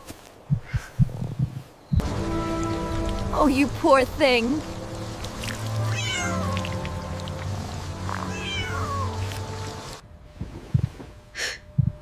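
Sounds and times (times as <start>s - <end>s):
soft background music: 2.0s - 10.9s
kitten meowing: 5.9s - 6.8s, 8.2s - 9.2s.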